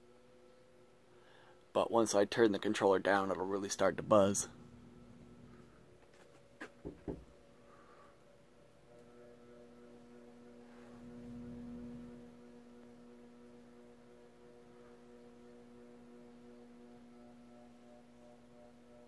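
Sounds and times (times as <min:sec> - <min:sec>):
fan motor electrical buzz: 0:00.0 - 0:19.0
low swell: 0:02.6 - 0:05.9.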